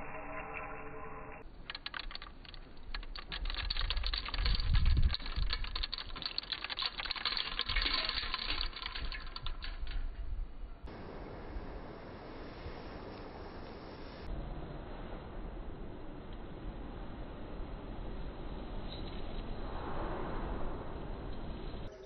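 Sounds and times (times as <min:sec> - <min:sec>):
coffee beans clicking into grinder: 0:01.4 - 0:10.0.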